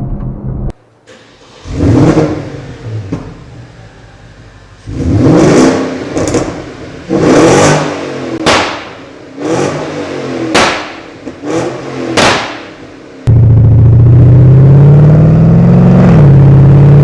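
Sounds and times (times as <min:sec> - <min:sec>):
engine revving: 0:01.5 - 0:03.2, 0:04.8 - 0:08.5, 0:09.4 - 0:10.6, 0:11.3 - 0:17.0
loud steady engine note: 0:13.1 - 0:17.0.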